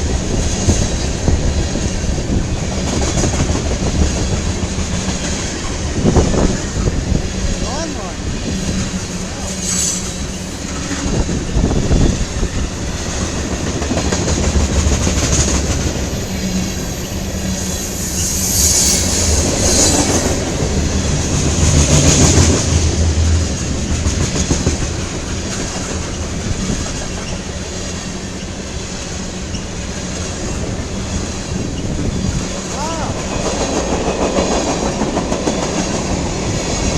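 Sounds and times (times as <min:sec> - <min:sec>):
wheels clacking over rail joints: 0:00.0 - 0:18.3, 0:19.0 - 0:36.9
freight train cars rumbling: 0:00.0 - 0:36.9
high hiss from train wheels: 0:02.7 - 0:22.6.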